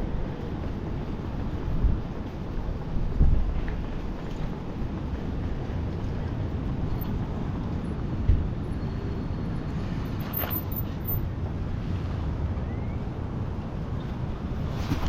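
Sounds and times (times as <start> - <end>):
wind on microphone: 0.0 - 10.2.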